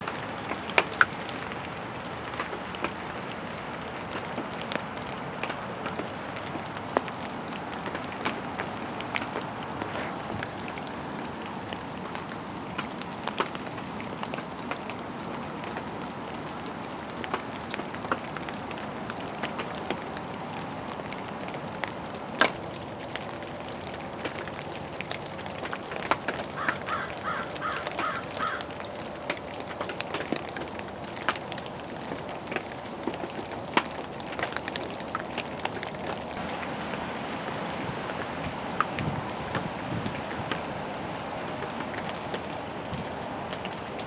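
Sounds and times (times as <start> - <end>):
steady rain: 0.0 - 44.0
water drips: 0.0 - 44.0
bird calling: 26.6 - 28.8.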